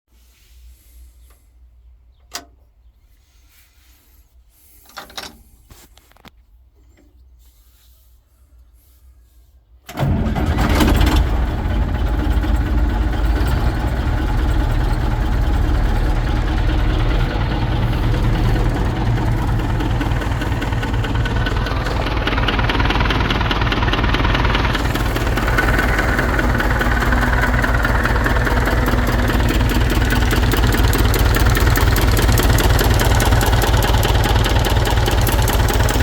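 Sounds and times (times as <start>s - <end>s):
diesel tractor engine starting and idling: 9.8s - 36.0s.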